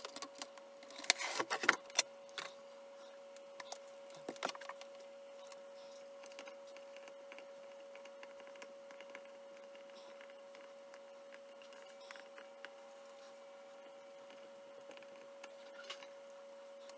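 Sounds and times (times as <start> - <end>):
steady high-pitched hum: 0.0 - 16.9.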